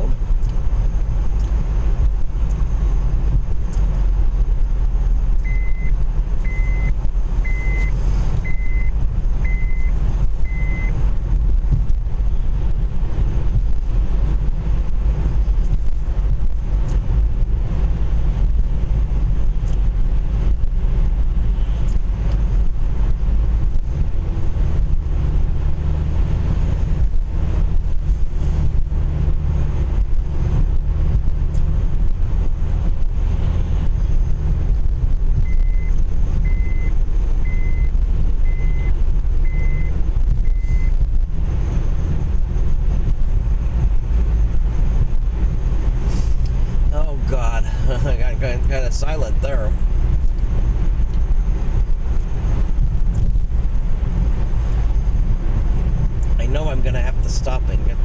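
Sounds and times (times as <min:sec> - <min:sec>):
car road and engine rumble: 0:00.0 - 0:58.0
high electronic beep: 0:05.4 - 0:10.9, 0:35.4 - 0:41.0.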